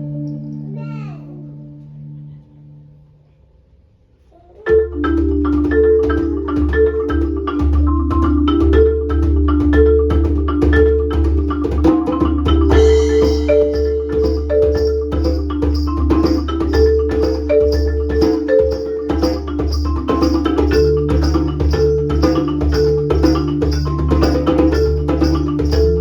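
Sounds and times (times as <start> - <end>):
marimba playing fast: 4.6 - 26.0
high percussion shimmer: 12.7 - 16.4.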